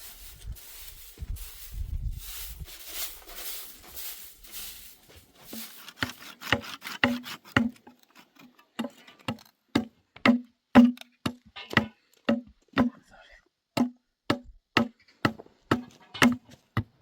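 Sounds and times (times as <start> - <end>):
soft rustling: 0.0 - 6.2
sharp knocks with hollow ring: 9.8 - 13.0, 13.8 - 16.9.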